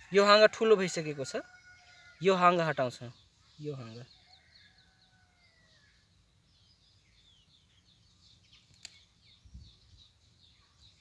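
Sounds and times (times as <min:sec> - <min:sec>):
small birds chirping: 0:00.0 - 0:11.0
sharp click: 0:08.7 - 0:09.0.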